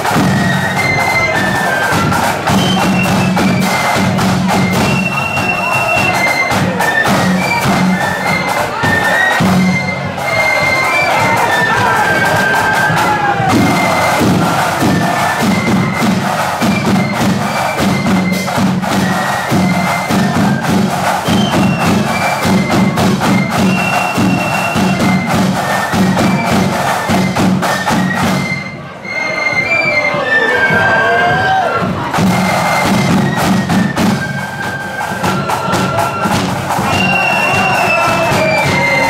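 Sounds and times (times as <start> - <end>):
rapid snare drum strokes: 0.0 - 28.8, 31.3 - 39.0
flutes playing tune: 0.0 - 39.0
bass drum beats: 12.1 - 25.5.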